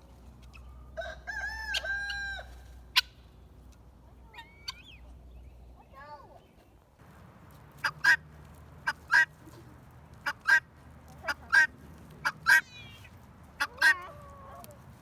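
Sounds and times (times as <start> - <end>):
guineafowl two-syllable call: 0.5 - 3.2, 4.3 - 5.0, 8.9 - 9.4, 10.2 - 14.7.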